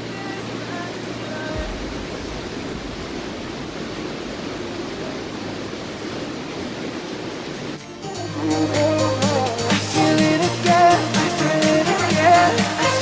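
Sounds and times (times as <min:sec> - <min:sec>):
waterfall roaring: 0:00.0 - 0:07.8.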